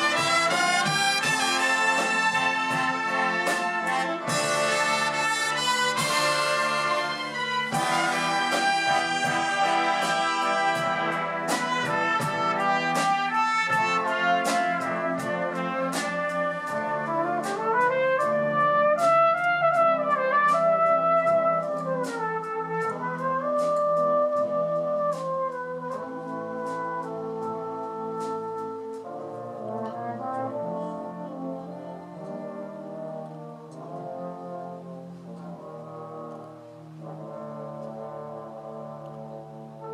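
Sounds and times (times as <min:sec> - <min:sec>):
percussion strikes: 0:00.0 - 0:16.8
brass band playing: 0:00.0 - 0:39.9.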